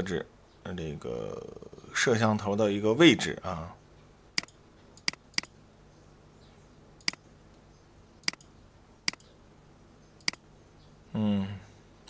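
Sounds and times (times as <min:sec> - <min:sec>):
mouse button clicking: 0:08.2 - 0:08.5, 0:10.2 - 0:10.4.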